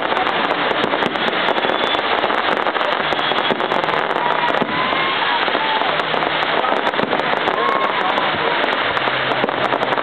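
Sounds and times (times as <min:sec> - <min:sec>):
fireworks crackling: 0:00.0 - 0:10.0
faint firework whistles: 0:01.0 - 0:06.0.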